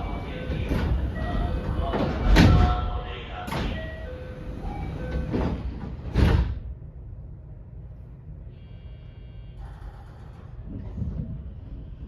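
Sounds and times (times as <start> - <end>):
train doors thudding shut: 0.0 - 2.8, 3.5 - 6.7
low train rumble: 0.0 - 12.0.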